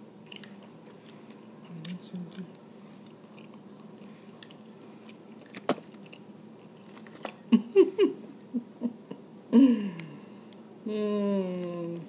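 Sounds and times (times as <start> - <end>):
person chewing crab meat: 0.2 - 7.4.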